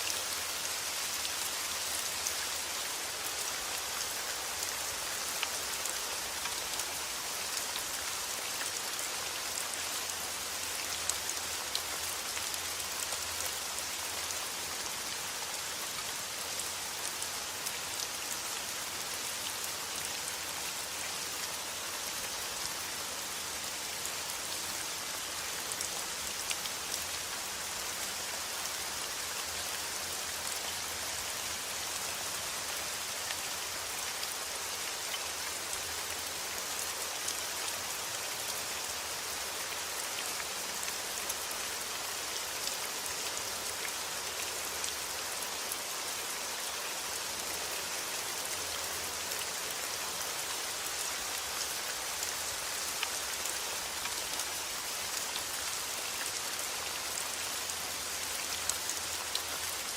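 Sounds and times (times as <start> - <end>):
rain falling on a surface: 0.0 - 59.9.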